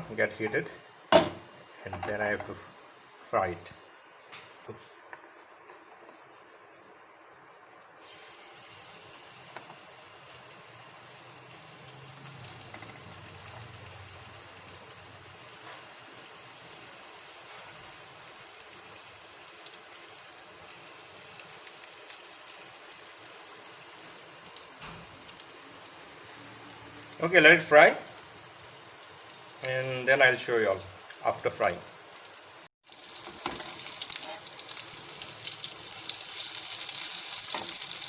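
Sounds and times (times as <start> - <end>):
fish sizzling in a frying pan: 8.0 - 38.0.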